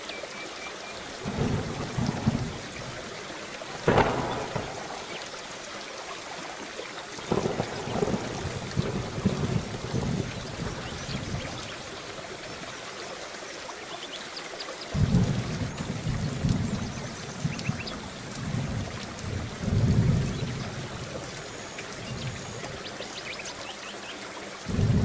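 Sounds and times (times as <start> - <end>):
steady rain hissing: 0.0 - 25.0
low thunder rumbling: 1.2 - 5.6, 7.3 - 12.0, 14.9 - 23.0, 24.7 - 25.0.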